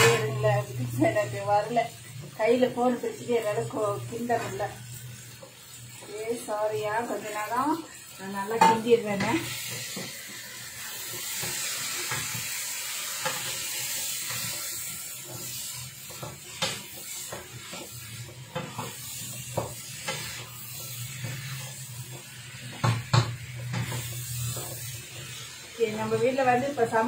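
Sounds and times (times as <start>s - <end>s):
food sizzling in a wok: 0.0s - 27.0s
wooden spatula scraping a pan: 8.3s - 27.0s.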